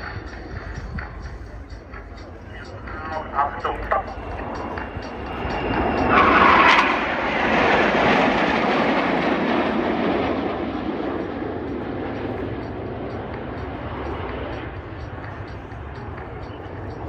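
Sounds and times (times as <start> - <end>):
propeller aircraft passing: 0.0 - 17.0.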